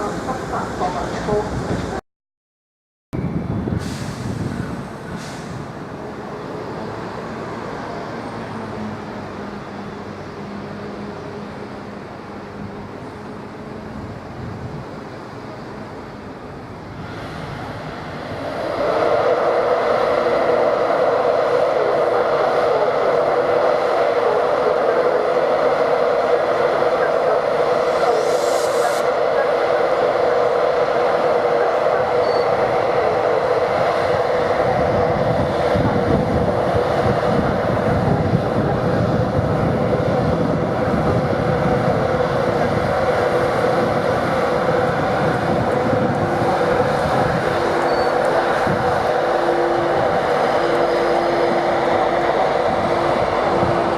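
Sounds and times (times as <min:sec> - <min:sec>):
train running past: 0:00.0 - 0:02.0, 0:03.2 - 0:53.9
brief high hiss: 0:03.8 - 0:05.6, 0:28.1 - 0:29.1.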